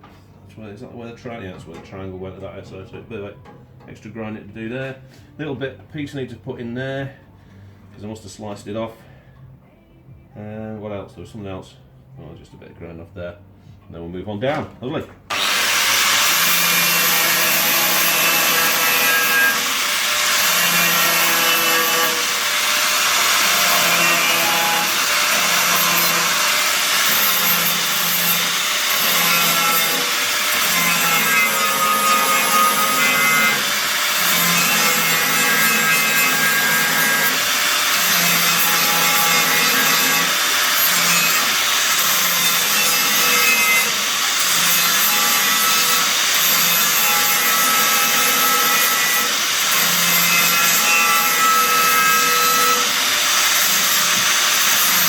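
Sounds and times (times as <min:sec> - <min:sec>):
angle grinder grinding steel: 0:15.3 - 0:55.0.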